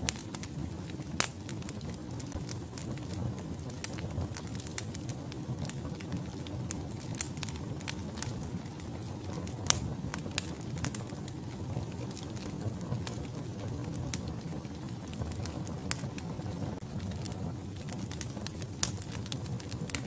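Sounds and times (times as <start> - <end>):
logs crackling and popping: 0.0 - 20.0
low rumble of flames: 0.0 - 20.0.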